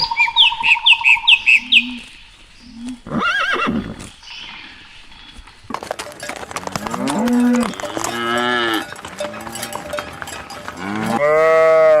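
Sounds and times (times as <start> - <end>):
high falling bird chirps: 0.0 - 2.8
horse whinnying: 3.1 - 4.0.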